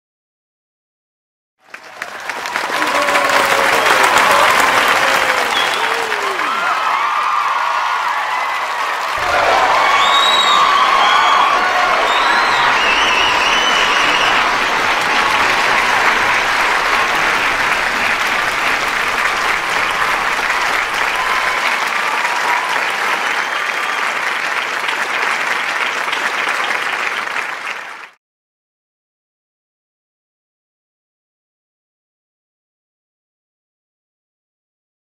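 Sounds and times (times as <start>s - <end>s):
large audience applauding: 1.6s - 28.2s
audience cheers: 1.7s - 28.2s.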